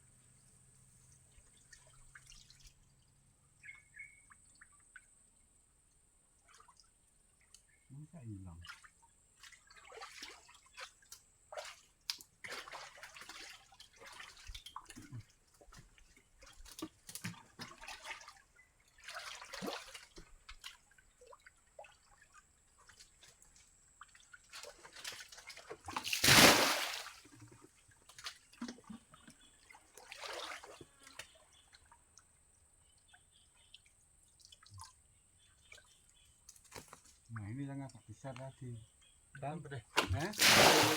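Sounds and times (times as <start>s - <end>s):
muddy water splashing and sloshing: 1.0s - 3.3s, 8.3s - 33.0s, 39.9s - 40.9s.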